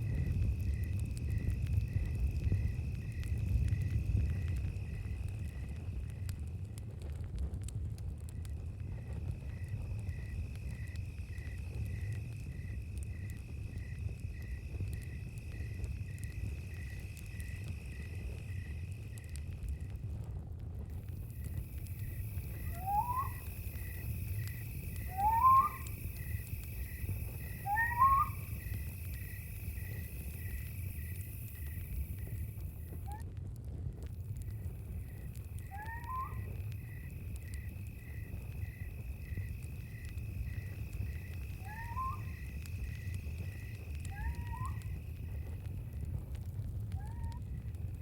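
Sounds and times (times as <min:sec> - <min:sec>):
crickets chirping: 0:00.0 - 0:06.7, 0:08.4 - 0:20.1, 0:20.9 - 0:33.2, 0:34.1 - 0:48.0
campfire crackling: 0:00.0 - 0:48.0
high insect drone: 0:21.0 - 0:33.0, 0:34.5 - 0:46.2
owl calling: 0:22.6 - 0:28.8, 0:35.6 - 0:36.6, 0:41.5 - 0:43.0, 0:44.1 - 0:45.0.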